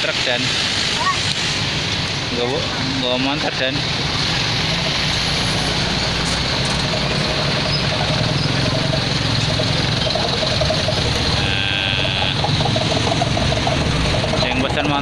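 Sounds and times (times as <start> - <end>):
large vehicle engine running: 0.0 - 15.0
road traffic: 0.0 - 15.0
high steady tone: 6.9 - 14.5.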